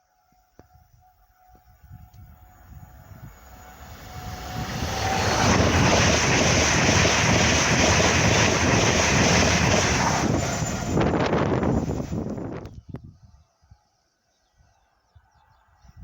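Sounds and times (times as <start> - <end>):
train passing at speed: 1.8 - 12.7.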